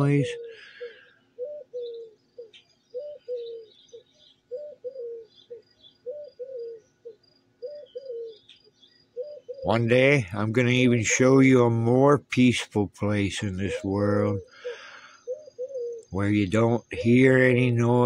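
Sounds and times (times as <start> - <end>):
dove cooing: 0.0 - 12.1, 13.4 - 18.0
songbirds chirping: 0.0 - 18.0.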